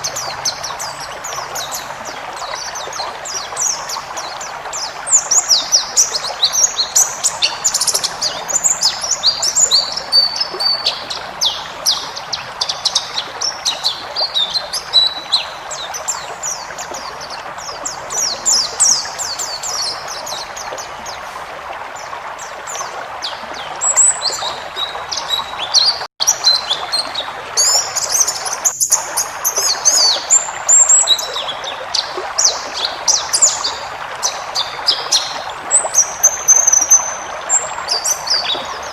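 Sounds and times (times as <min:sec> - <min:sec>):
bird twittering song: 0:00.0 - 0:21.4, 0:22.0 - 0:38.9.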